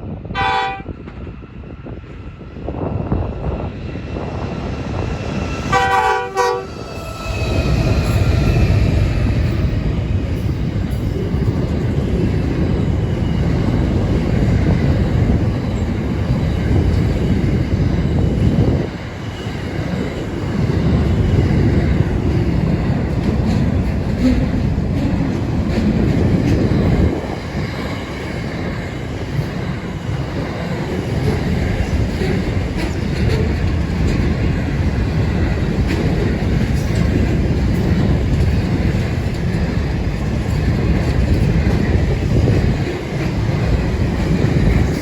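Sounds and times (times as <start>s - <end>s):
freight train rumbling past: 0.0s - 45.0s
locomotive horn blast: 0.3s - 0.9s, 5.7s - 6.8s.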